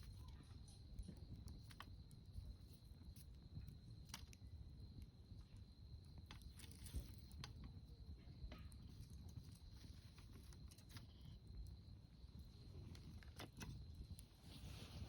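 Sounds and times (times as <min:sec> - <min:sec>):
campfire crackling: 0:00.8 - 0:15.0.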